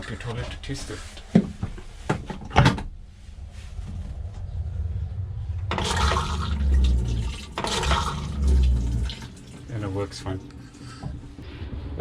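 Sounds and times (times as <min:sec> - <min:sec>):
water rushing into toilet bowl: 0:05.7 - 0:11.3
flush pump humming: 0:05.7 - 0:11.4.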